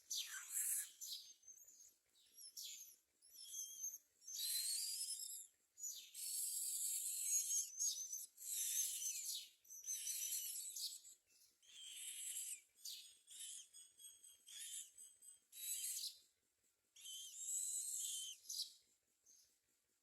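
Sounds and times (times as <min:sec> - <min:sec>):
nestlings begging calls: 0:00.1 - 0:01.1, 0:11.6 - 0:13.7.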